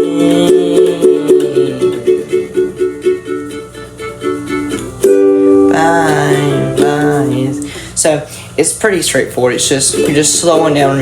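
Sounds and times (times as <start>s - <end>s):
ukulele strumming: 0.0s - 8.0s, 8.9s - 11.0s
person's voice: 5.8s - 11.0s.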